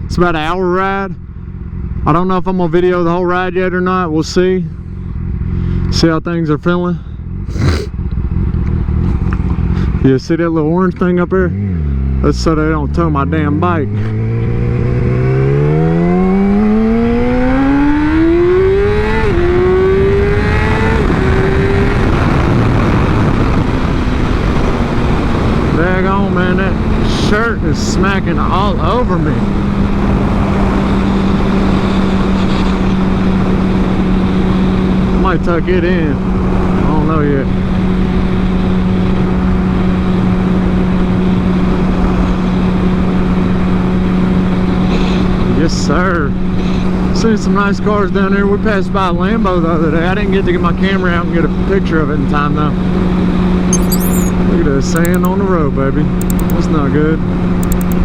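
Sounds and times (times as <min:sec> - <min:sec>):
motorcycle engine accelerating: 0:07.0 - 0:10.1, 0:11.0 - 0:36.9, 0:55.0 - 0:55.3, 0:56.2 - 0:56.7, 0:57.5 - 0:58.0
wind rushing over microphone: 0:19.3 - 0:27.1.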